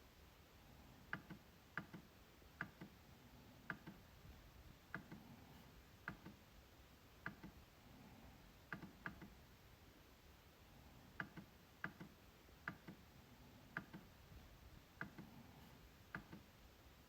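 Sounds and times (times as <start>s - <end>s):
trackpad clicks: 1.1s - 3.0s, 3.6s - 4.0s, 4.9s - 5.2s, 6.0s - 6.4s, 7.2s - 7.6s, 8.7s - 9.4s, 11.2s - 13.0s, 13.7s - 14.1s, 16.1s - 16.5s.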